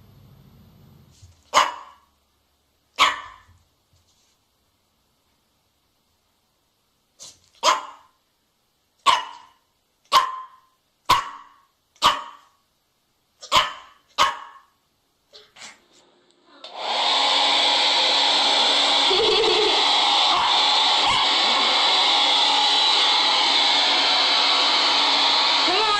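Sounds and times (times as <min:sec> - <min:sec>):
dog barking: 0:01.5 - 0:02.1, 0:03.0 - 0:03.5, 0:07.6 - 0:08.2, 0:09.0 - 0:12.6, 0:13.4 - 0:14.8
hair dryer blowing: 0:16.6 - 0:25.9.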